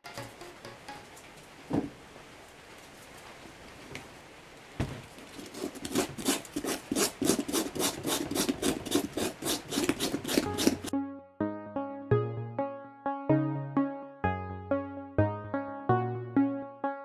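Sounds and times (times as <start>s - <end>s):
music: 0.0s - 1.2s, 10.4s - 17.0s
knock: 1.7s - 2.0s
rapid rubbing strokes: 5.3s - 10.9s.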